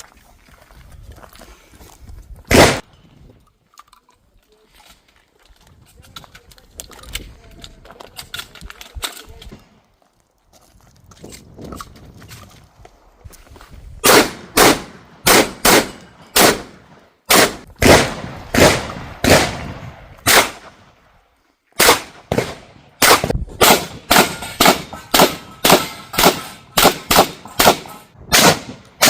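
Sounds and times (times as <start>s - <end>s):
shotgun firing rapid shots: 2.5s - 2.8s, 14.0s - 20.7s, 21.8s - 29.0s.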